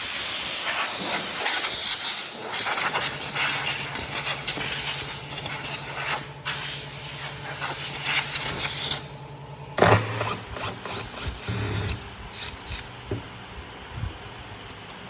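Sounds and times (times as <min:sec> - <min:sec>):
loud steady hiss: 0:00.0 - 0:09.2
brief mechanical whirs: 0:09.8 - 0:12.9.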